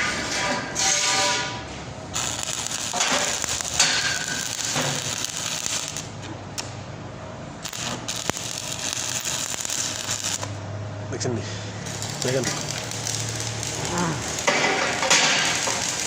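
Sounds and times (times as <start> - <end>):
welding arc crackling: 2.0 - 6.8, 7.5 - 10.7, 11.8 - 16.0.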